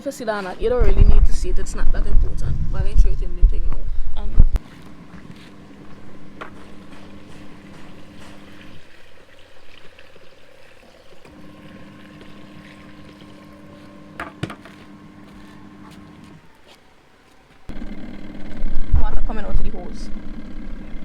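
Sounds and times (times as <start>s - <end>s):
washing machine motor: 0.6s - 16.5s, 17.7s - 21.0s
water sloshing: 4.6s - 16.3s.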